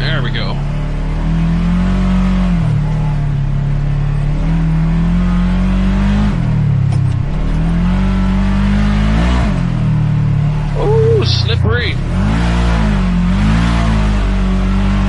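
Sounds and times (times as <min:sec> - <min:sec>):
utility vehicle engine revving: 0:00.0 - 0:15.0.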